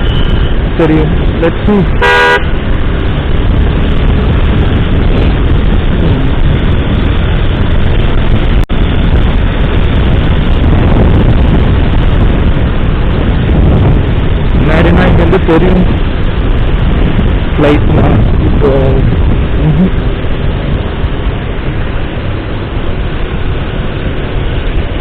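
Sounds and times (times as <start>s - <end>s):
motorcycle engine running: 0.0s - 25.0s
wind rushing on microphone: 0.0s - 25.0s.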